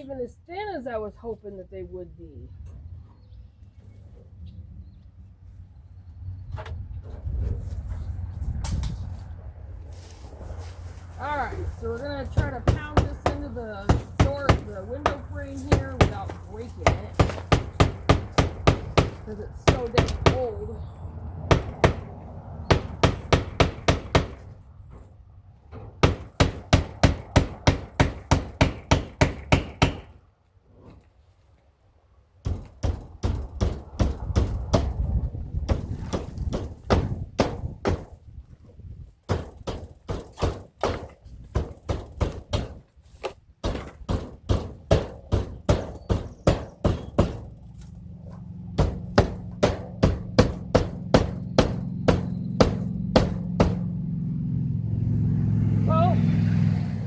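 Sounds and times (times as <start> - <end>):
hammer driving nail into wood: 22.7 - 24.4, 26.0 - 30.2, 32.4 - 35.0, 39.3 - 47.5, 48.8 - 53.8.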